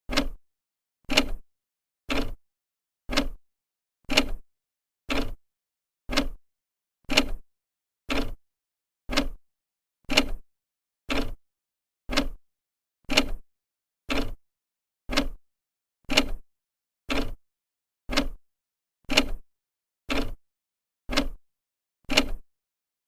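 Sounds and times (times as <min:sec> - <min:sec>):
clock ticking: 0:00.1 - 0:00.4, 0:02.1 - 0:02.4, 0:03.1 - 0:03.4, 0:04.1 - 0:04.4, 0:05.1 - 0:05.4, 0:06.1 - 0:06.4, 0:07.1 - 0:07.4, 0:08.1 - 0:08.4, 0:09.1 - 0:09.4, 0:10.1 - 0:10.4, 0:11.1 - 0:11.4, 0:12.1 - 0:12.4, 0:13.1 - 0:13.4, 0:14.1 - 0:14.4, 0:15.1 - 0:15.4, 0:16.1 - 0:16.4, 0:17.1 - 0:17.4, 0:18.1 - 0:18.4, 0:19.1 - 0:19.4, 0:20.1 - 0:20.4, 0:21.1 - 0:21.4, 0:22.1 - 0:22.4.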